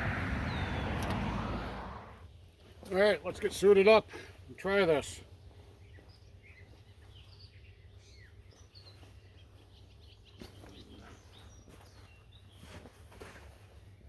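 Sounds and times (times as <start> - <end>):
low rumble: 0.0 - 2.2
faint birdsong: 0.0 - 14.0.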